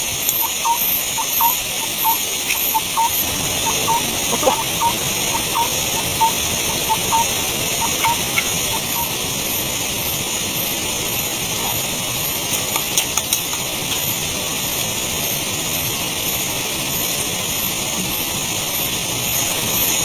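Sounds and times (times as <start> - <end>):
sharp clicks: 0.2 - 9.1
faint high pulse: 0.3 - 9.2.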